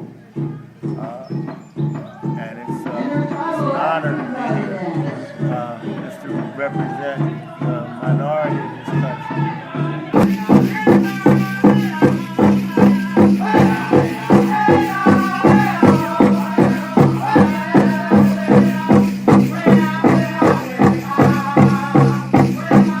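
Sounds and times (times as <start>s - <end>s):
large drum beating: 0.0s - 23.0s
voices singing: 0.0s - 23.0s.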